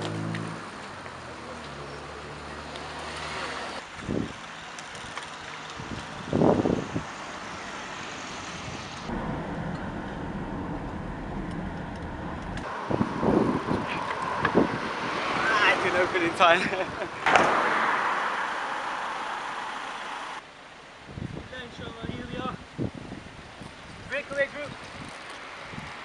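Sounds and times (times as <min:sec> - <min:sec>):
motor vehicles passing: 0:00.0 - 0:20.4.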